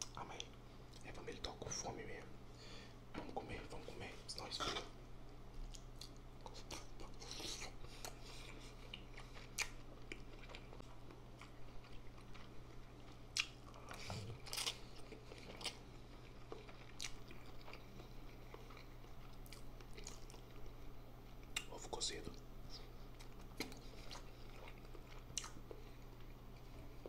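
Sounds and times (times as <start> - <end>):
faint low hum: 0.0 - 27.0
chewing and biting food: 5.6 - 21.7, 23.1 - 27.0.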